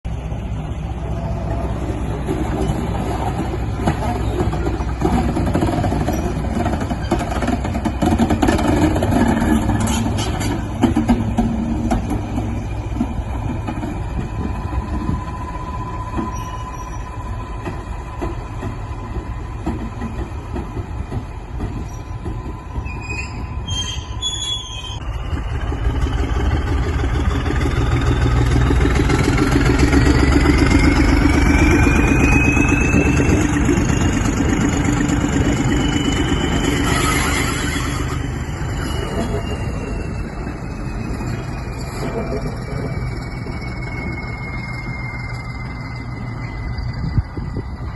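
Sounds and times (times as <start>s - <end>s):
diesel locomotive engine: 0.0s - 47.9s
high squeal: 14.4s - 19.2s, 21.8s - 25.0s, 28.8s - 47.9s.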